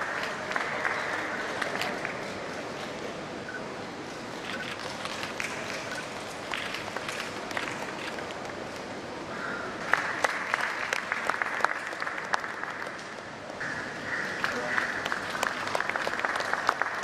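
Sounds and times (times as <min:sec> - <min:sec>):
audience applauding: 0:00.0 - 0:02.2, 0:09.8 - 0:13.1, 0:14.4 - 0:17.0.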